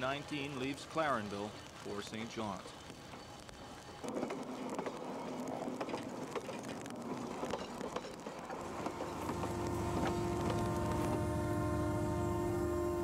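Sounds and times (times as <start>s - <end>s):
train wheels clattering over rails: 3.0s - 11.4s
diesel locomotive engine drone: 6.8s - 13.0s.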